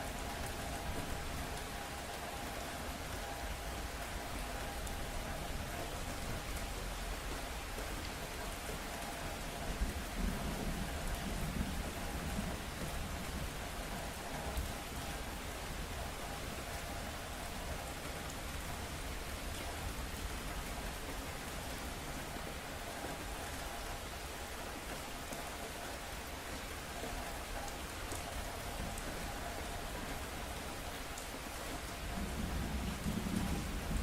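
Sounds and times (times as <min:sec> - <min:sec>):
steady rain falling: 0:00.0 - 0:34.0
low rumble of thunder: 0:31.9 - 0:34.0.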